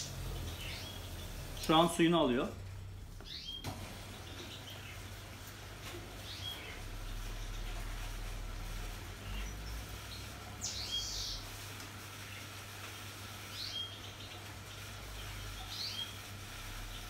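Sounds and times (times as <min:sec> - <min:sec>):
washing machine humming: 0:00.0 - 0:17.0
high bird-like chirps: 0:03.2 - 0:03.7, 0:10.6 - 0:11.5.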